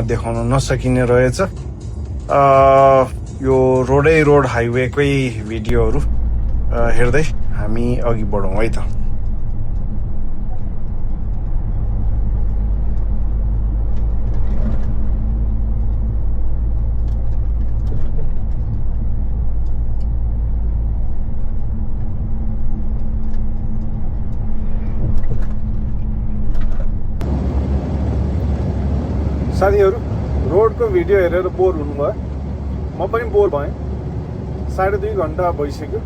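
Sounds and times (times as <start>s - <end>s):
road noise: 0.0s - 36.0s
truck engine drone: 0.0s - 36.0s.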